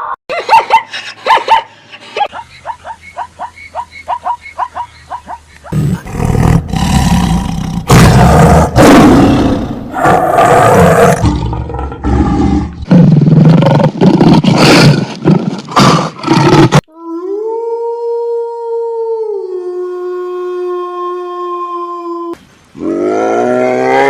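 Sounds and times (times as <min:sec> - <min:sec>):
big cat roaring: 0:05.7 - 0:15.0.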